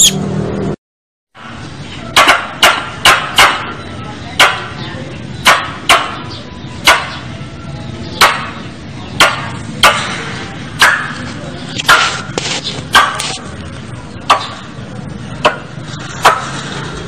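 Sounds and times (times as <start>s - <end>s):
squirrel chipping calls: 0.0s - 0.2s.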